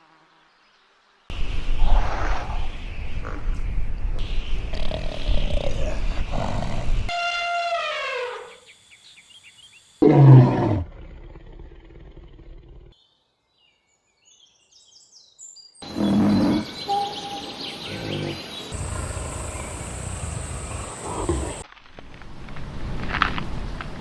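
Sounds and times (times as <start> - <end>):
animal growling: 4.7 - 7.1, 10.0 - 13.0, 15.8 - 17.2, 17.8 - 21.6
low animal roar: 10.0 - 13.0, 15.8 - 17.2, 17.8 - 21.6
faint bird chirps: 15.8 - 21.6.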